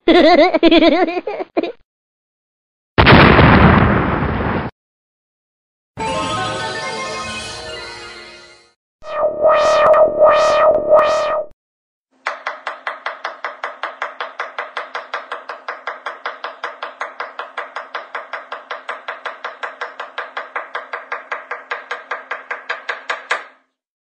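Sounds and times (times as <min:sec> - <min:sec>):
rapid sharp knocks: 0:12.2 - 0:23.6.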